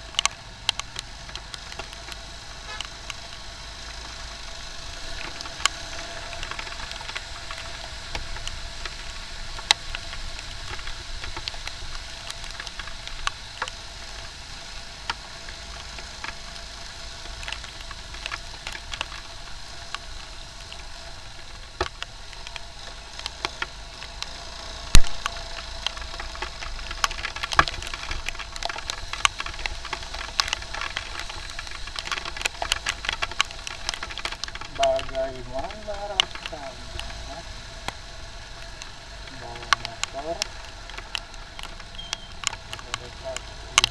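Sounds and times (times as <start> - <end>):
raindrops clicking on microphone: 0.0 - 43.9
wind and road noise hiss: 0.0 - 43.9.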